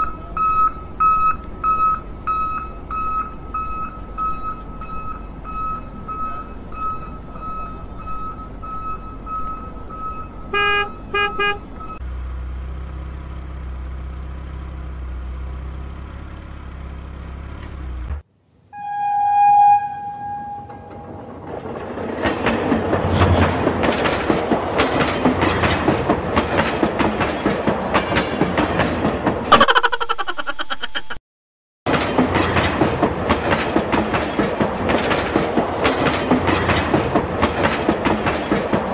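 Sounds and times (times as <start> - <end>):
train horn blast: 10.5 - 11.6, 18.7 - 21.3
train clickety-clack: 20.8 - 29.5, 31.9 - 38.9.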